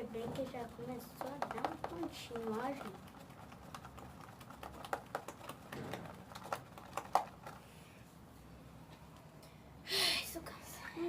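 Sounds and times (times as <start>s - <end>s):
sticky clicks of stirred slime: 0.6s - 7.6s.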